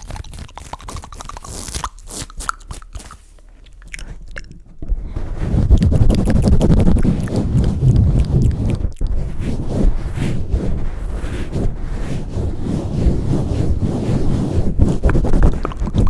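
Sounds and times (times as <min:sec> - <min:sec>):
wet mouth clicks and smacks: 0:00.0 - 0:04.7
hands rumbling over microphone: 0:04.7 - 0:16.0.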